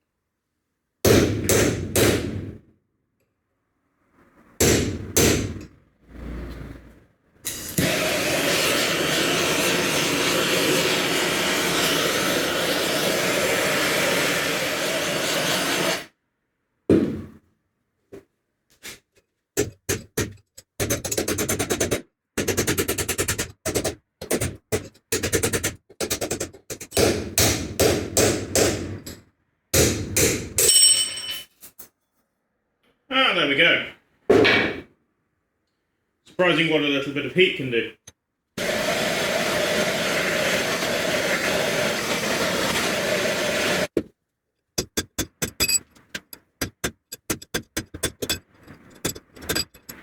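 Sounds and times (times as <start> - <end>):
heat torch rushing hiss: 7.5 - 16.1, 38.6 - 43.9.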